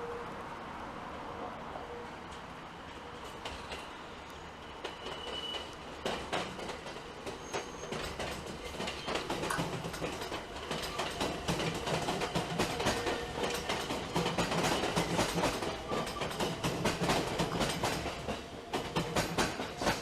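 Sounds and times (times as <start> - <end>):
high wheel squeals: 4.3 - 5.8, 7.3 - 8.2
train wheels clicking over rail joints: 4.8 - 20.0.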